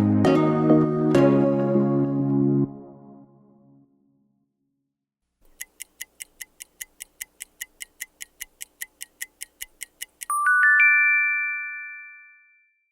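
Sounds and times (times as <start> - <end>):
timer ticking: 5.5 - 10.4.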